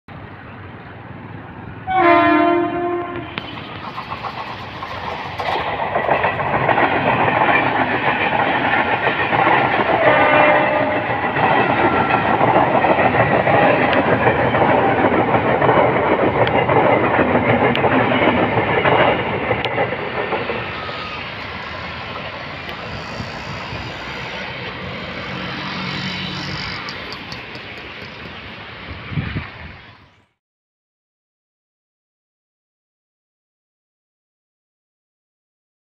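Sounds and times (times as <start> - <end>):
train horn blast: 1.9 - 3.5, 10.0 - 11.2, 22.8 - 27.0
train wheels clattering on rails: 2.8 - 29.6.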